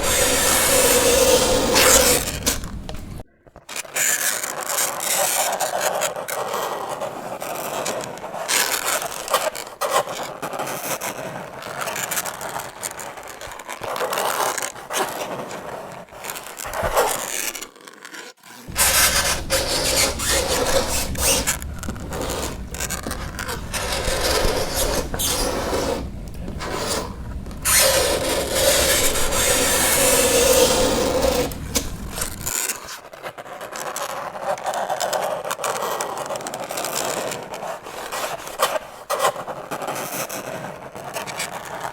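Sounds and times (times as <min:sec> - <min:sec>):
fingernails screeching on chalkboard: 0:00.0 - 0:10.6, 0:11.9 - 0:33.0
low hum: 0:18.7 - 0:32.5.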